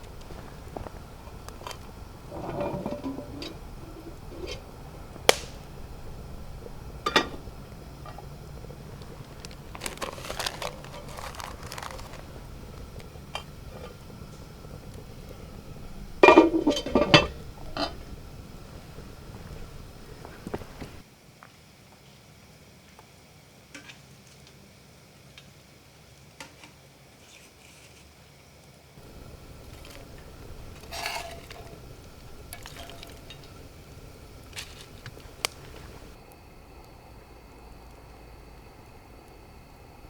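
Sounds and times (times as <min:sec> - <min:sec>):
dishes clinking and knocking: 0:02.3 - 0:04.6, 0:07.1 - 0:07.4, 0:16.2 - 0:18.1, 0:29.0 - 0:33.7.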